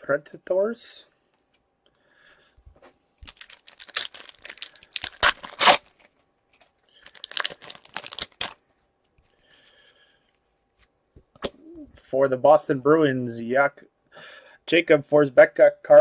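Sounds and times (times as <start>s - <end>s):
foil wrapper tearing and crinkling: 3.2s - 8.6s.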